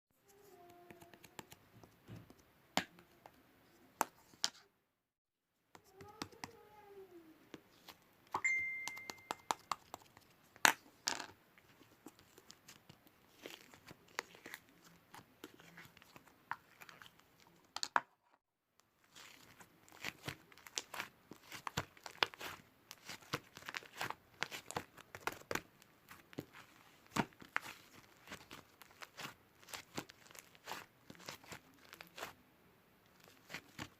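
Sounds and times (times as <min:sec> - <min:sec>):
sharp clicks and taps: 0:08.3 - 0:10.2
crinkling handling noises: 0:11.6 - 0:17.7, 0:19.0 - 0:32.4, 0:33.0 - 0:33.9.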